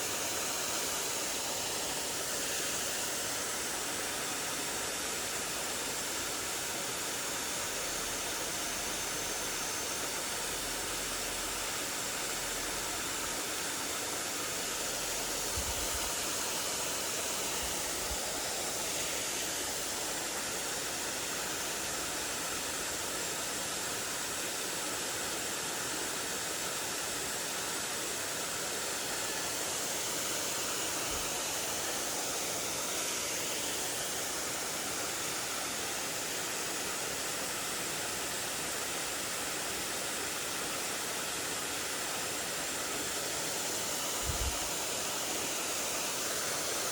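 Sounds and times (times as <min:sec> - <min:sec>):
stream water rushing over rocks: 0:00.0 - 0:46.9.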